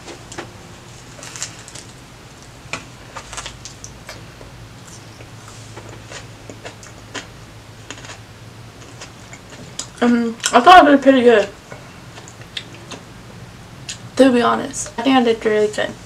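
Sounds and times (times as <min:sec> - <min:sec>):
low steady hum: 0:00.0 - 0:16.0
chewing a sandwich: 0:01.0 - 0:10.6.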